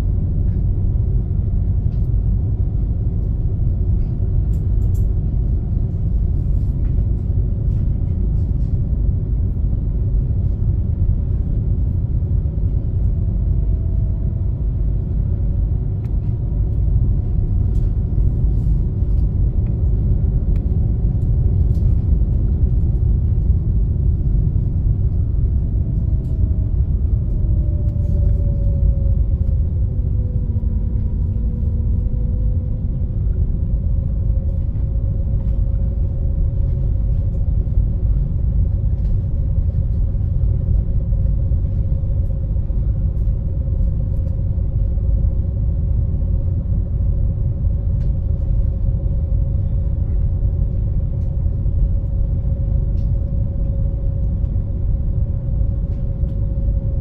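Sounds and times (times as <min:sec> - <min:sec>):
boat engine rumble: 0:00.0 - 0:57.0.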